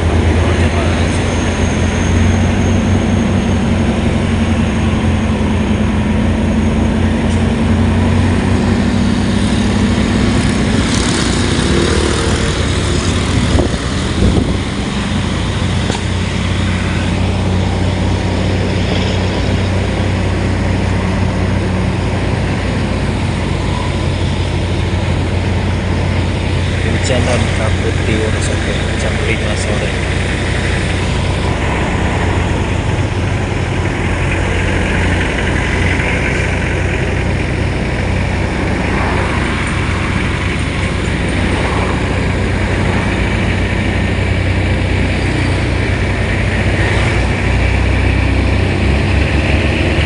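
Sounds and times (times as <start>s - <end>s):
vehicle engine running: 0.0s - 50.0s.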